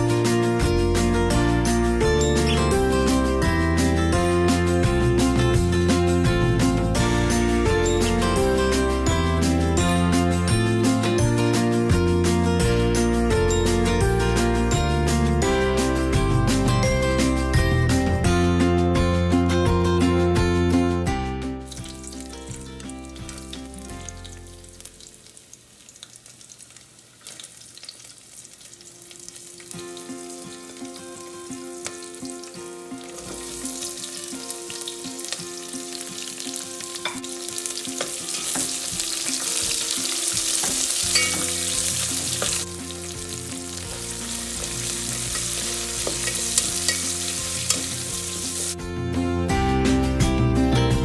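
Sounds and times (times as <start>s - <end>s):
onions sizzling in a pot: 21.6s - 48.8s.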